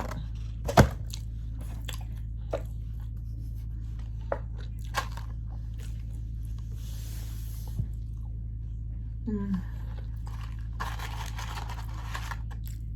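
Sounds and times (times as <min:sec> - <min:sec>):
steady low hum: 0:00.0 - 0:12.9
chewing food close-up: 0:00.3 - 0:03.2, 0:04.0 - 0:06.7, 0:09.8 - 0:12.9.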